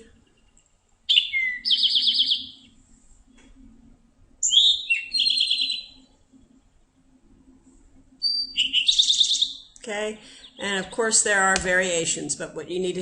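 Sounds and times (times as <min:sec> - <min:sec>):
bird singing with trill: 0:01.1 - 0:02.7, 0:04.4 - 0:06.1, 0:08.2 - 0:09.7.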